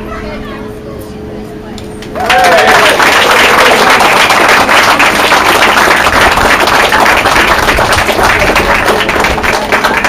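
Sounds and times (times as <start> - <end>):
crowd applauding: 2.1 - 10.0.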